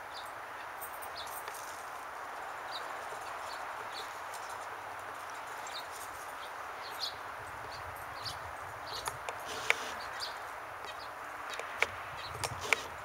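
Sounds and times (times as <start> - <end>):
steady outdoor hiss: 0.0 - 13.0
small bird chirping: 5.3 - 12.9.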